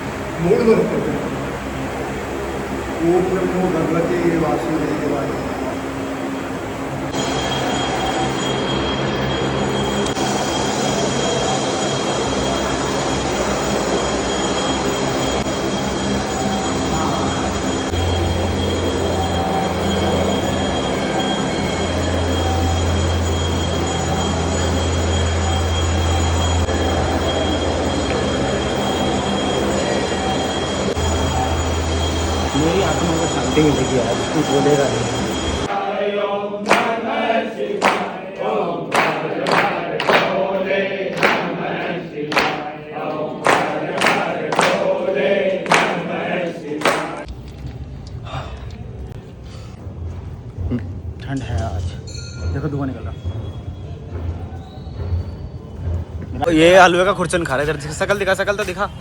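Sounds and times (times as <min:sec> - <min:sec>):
mechanical rumble: 0:00.0 - 0:35.8
low hum: 0:00.0 - 0:35.9
thin high tone: 0:00.0 - 0:47.3
group of voices singing: 0:35.6 - 0:47.3
sharp percussive strikes: 0:36.7 - 0:38.3, 0:38.9 - 0:40.6, 0:41.2 - 0:45.1, 0:45.7 - 0:47.2.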